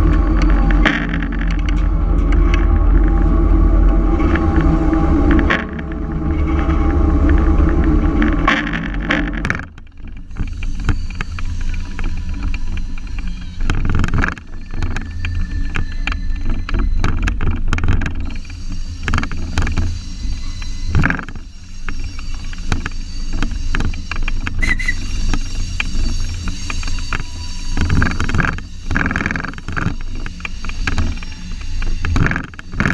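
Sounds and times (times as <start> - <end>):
diesel engine drone: 0.0 - 13.0
train cars clanking and rattling: 0.0 - 32.9
train rumbling along track: 0.0 - 32.9.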